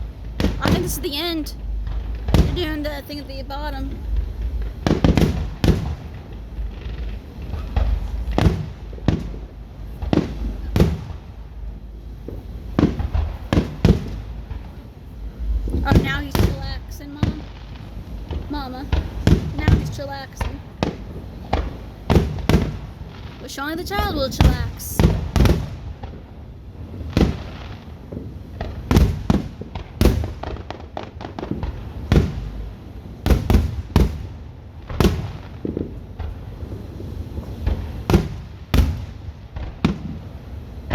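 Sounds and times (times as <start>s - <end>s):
low rumble: 0.0s - 22.1s
fireworks bangs: 0.0s - 40.9s.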